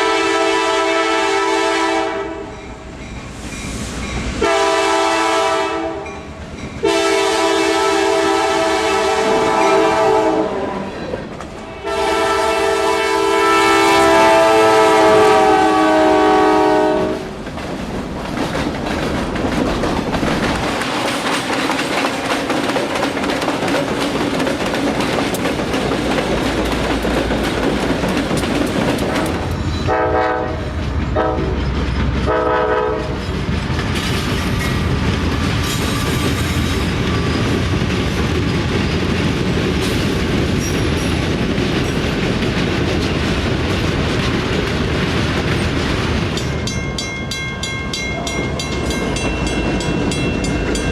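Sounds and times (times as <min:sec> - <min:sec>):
locomotive air horn: 0:00.0 - 0:02.5, 0:04.4 - 0:06.1, 0:06.8 - 0:11.0, 0:11.8 - 0:17.3, 0:29.3 - 0:31.6, 0:32.3 - 0:33.2
train wheels clickety-clack: 0:02.4 - 0:10.0, 0:16.6 - 0:50.9.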